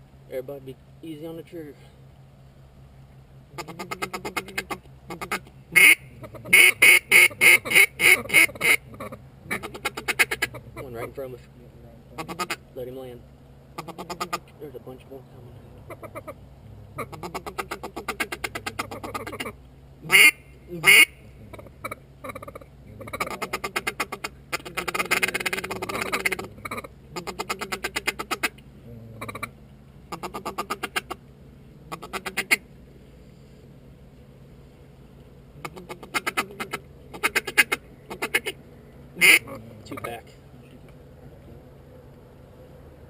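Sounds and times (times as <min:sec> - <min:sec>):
duck quacking: 0:03.6 - 0:11.2, 0:12.2 - 0:12.6, 0:13.8 - 0:14.5, 0:15.8 - 0:28.6, 0:29.2 - 0:31.2, 0:31.9 - 0:32.6, 0:35.6 - 0:38.6, 0:39.2 - 0:40.2.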